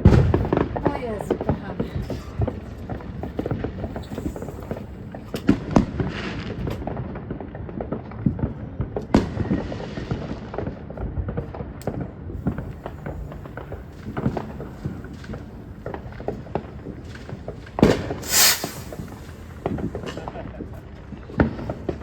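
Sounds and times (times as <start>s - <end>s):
fireworks bangs and pops: 0.0s - 22.0s
fireworks hiss: 3.3s - 5.3s, 12.4s - 20.5s, 21.3s - 22.0s.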